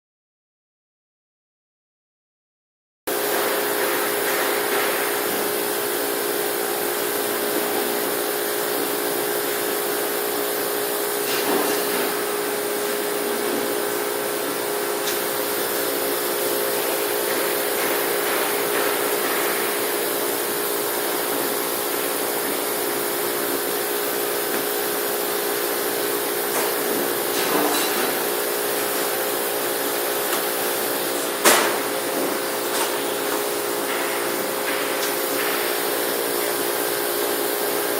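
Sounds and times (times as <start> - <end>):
constant machine hum: 3.1 - 37.9
laser cutting machine hiss: 3.1 - 37.9.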